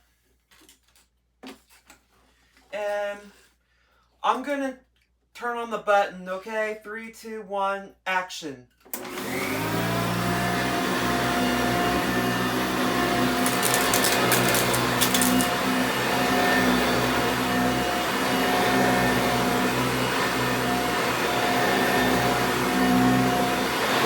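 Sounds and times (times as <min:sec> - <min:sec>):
upright vacuum cleaner running: 0:09.0 - 0:24.0.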